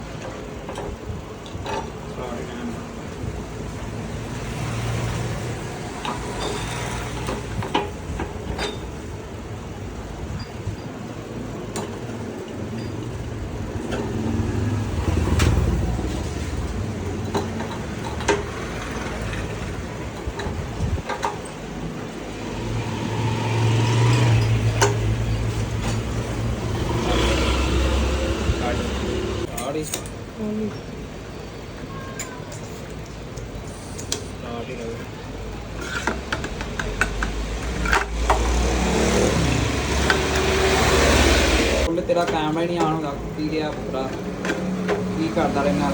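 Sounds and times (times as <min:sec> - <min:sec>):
vehicle engine running: 0:13.1 - 0:21.0, 0:22.2 - 0:29.5.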